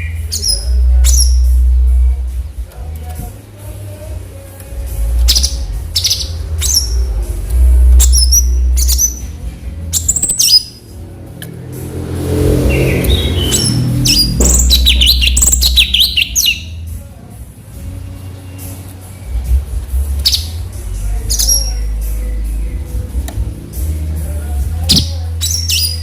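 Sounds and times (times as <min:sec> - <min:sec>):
bird chirping and whistling: 0:00.0 - 0:01.5, 0:05.2 - 0:07.0, 0:08.0 - 0:09.3, 0:09.9 - 0:10.8, 0:12.6 - 0:16.8, 0:20.2 - 0:20.6, 0:21.3 - 0:21.8, 0:24.9 - 0:26.0
steady low rumble: 0:00.5 - 0:18.0.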